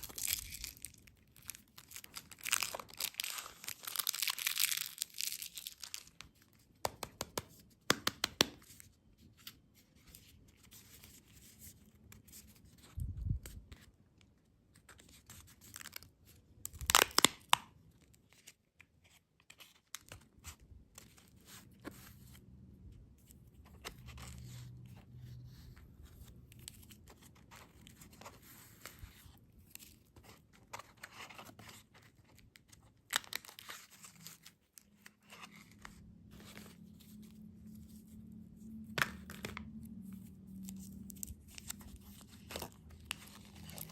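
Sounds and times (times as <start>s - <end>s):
wrapper tearing: 0.0s - 6.3s, 16.6s - 17.6s
candy wrapper crinkling: 0.0s - 6.5s, 15.6s - 17.7s.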